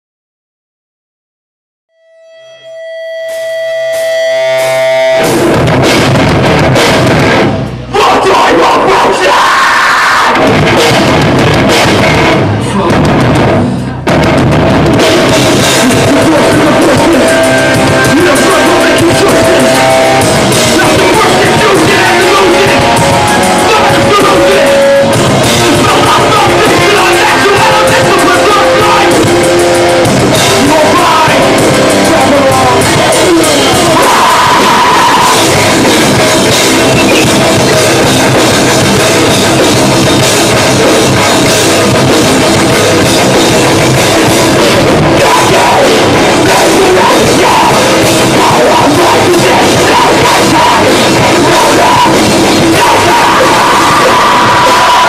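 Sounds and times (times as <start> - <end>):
distorted electric guitars: 2.0 - 55.0
pounding drum kit: 3.3 - 55.0
vocals: 7.8 - 14.0, 15.0 - 55.0.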